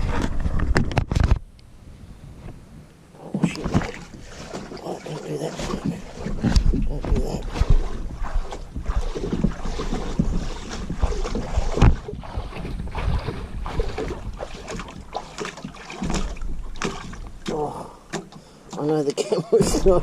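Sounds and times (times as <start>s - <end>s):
paddle splashes and knocks: 3.2s - 20.0s
wind buffeting microphone: 5.4s - 17.7s.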